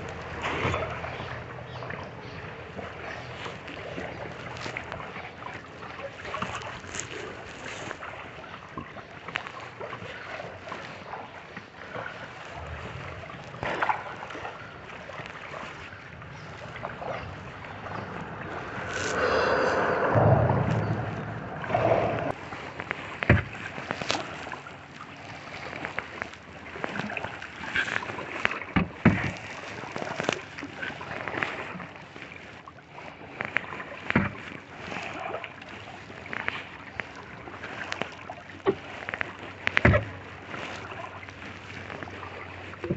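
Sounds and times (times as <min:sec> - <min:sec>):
water splashing around paddle: 0:00.0 - 0:42.9
sharp knocks: 0:17.9 - 0:22.3.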